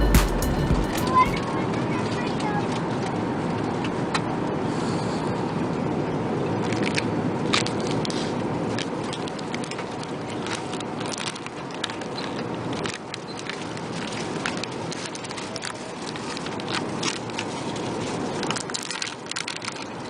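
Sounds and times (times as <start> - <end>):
aircraft cabin engine roar: 1.4 - 5.4.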